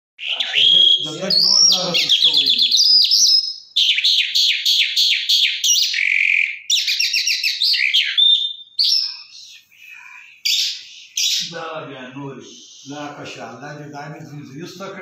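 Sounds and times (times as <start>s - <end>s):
caged bird singing trills: 0.2s - 11.7s.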